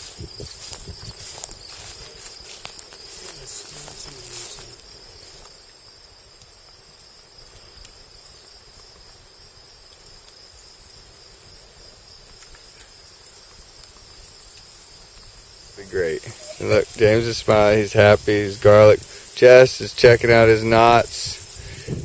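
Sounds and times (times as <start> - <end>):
field insects chorus: 0.0 - 22.0.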